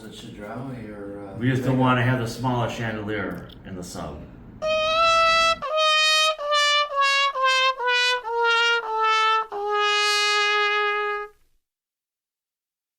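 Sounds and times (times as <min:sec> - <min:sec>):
trumpet melody: 0:04.6 - 0:11.4.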